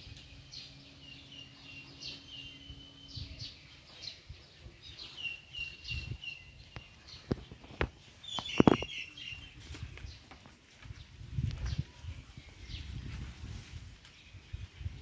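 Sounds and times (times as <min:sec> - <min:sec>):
birds chirping: 0:00.0 - 0:13.2.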